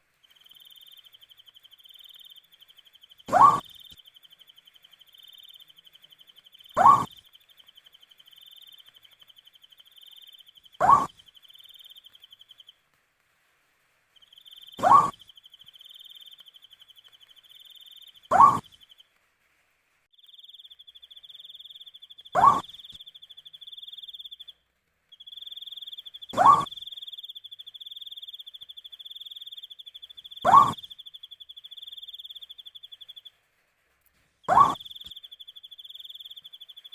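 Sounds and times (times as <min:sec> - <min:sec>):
owl hooting: 0:03.2 - 0:04.0, 0:06.7 - 0:07.3, 0:10.2 - 0:11.8, 0:14.5 - 0:15.3, 0:18.2 - 0:18.8, 0:22.2 - 0:24.4, 0:25.6 - 0:33.1, 0:34.5 - 0:36.9.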